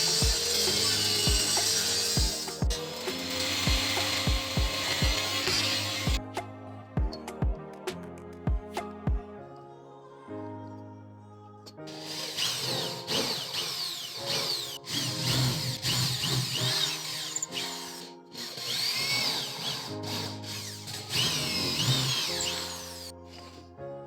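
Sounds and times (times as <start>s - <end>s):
power tool working wood: 0.0s - 6.2s, 11.9s - 23.6s
background music: 0.0s - 24.0s.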